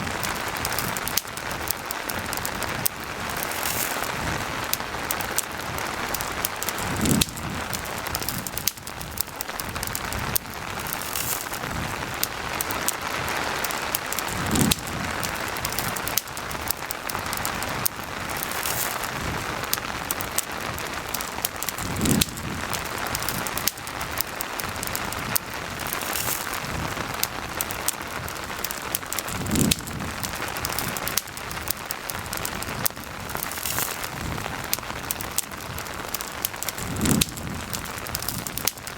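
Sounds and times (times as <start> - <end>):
campfire crackling and popping: 0.0 - 38.9
steady rain hiss: 0.0 - 38.9.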